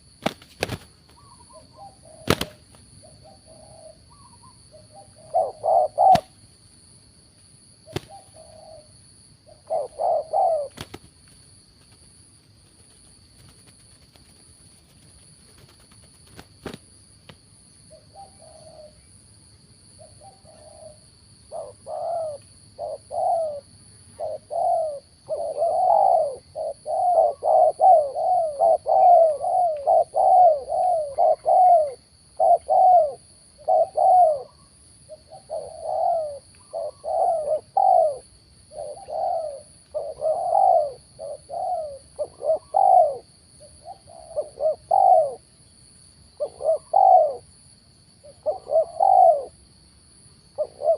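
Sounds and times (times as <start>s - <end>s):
doves cooing: 0.0s - 6.4s, 7.9s - 11.1s, 20.2s - 45.5s, 46.4s - 47.5s, 48.2s - 49.6s, 50.6s - 50.9s.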